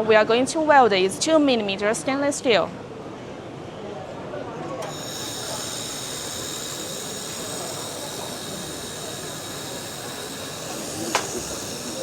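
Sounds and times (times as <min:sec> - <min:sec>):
laser welder hissing: 0:04.8 - 0:12.0
thin high whines: 0:04.8 - 0:12.0.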